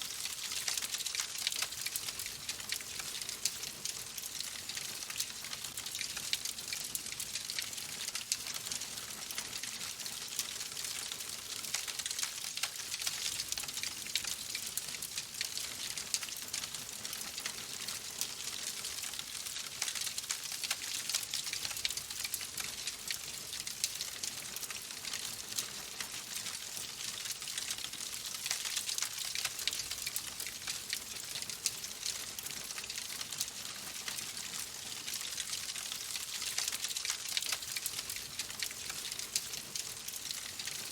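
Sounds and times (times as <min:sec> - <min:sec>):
wood fire crackling: 0:00.1 - 0:09.4, 0:27.1 - 0:40.9.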